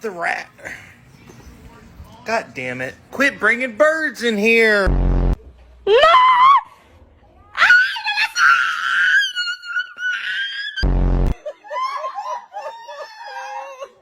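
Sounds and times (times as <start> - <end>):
loud low buzz: 4.9 - 5.5, 10.8 - 11.4.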